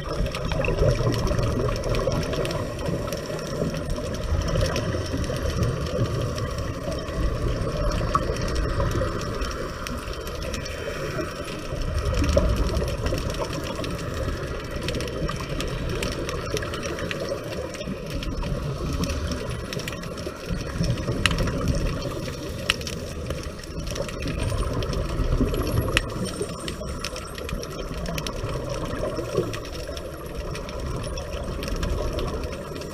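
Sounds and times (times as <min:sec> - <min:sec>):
exhaled bubbles rushing: 0:00.0 - 0:32.9
small clicks: 0:00.0 - 0:32.9
steady water hiss: 0:00.0 - 0:32.9.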